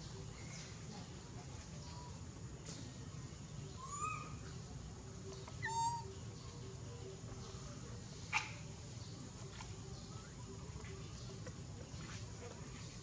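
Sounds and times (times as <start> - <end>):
baby monkey crying calls: 5.6 - 6.1.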